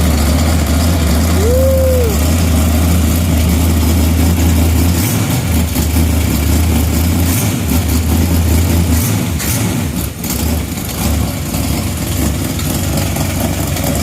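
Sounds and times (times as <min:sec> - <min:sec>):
engine idling unevenly: 0:00.0 - 0:14.0.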